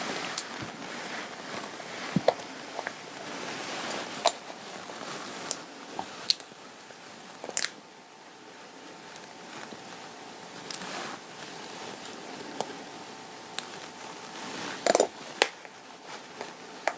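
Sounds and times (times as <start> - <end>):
fabric rustling: 0.0 - 6.3, 9.4 - 13.0, 13.7 - 16.7.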